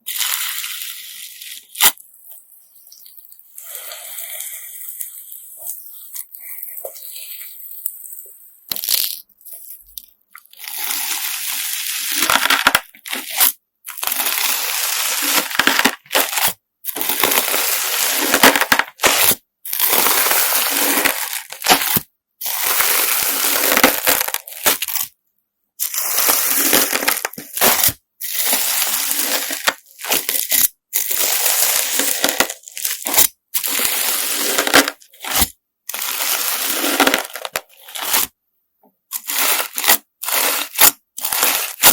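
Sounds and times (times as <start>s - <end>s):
gritty slime crunching: 8.7s - 25.1s, 25.8s - 38.3s, 39.1s - 41.9s.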